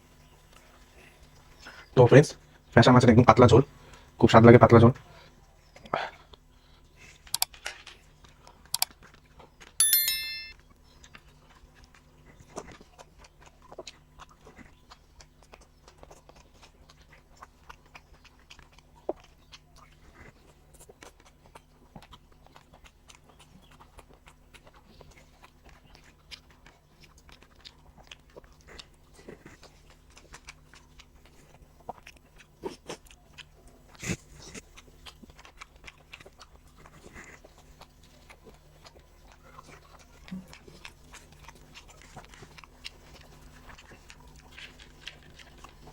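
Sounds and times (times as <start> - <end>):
chewing and lip smacks: 4.9 - 9.8, 10.9 - 45.9
metal dish ringing: 9.8 - 10.5.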